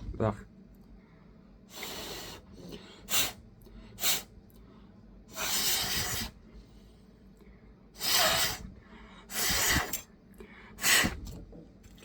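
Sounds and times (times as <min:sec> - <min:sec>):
compressed air hissing: 0:01.7 - 0:04.3, 0:05.3 - 0:06.4, 0:08.0 - 0:10.1, 0:10.8 - 0:11.2.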